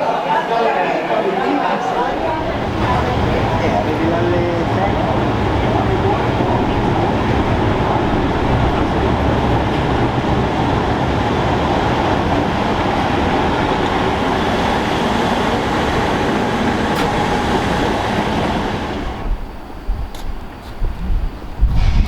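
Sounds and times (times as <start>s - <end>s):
electric railcar running: 0.1s - 22.0s.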